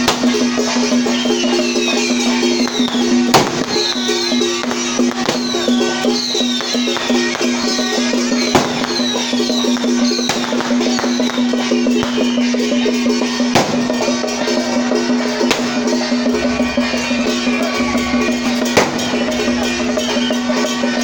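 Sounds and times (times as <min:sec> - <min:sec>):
clacking wood-block percussion: 0:00.0 - 0:21.0
drums: 0:00.0 - 0:21.0.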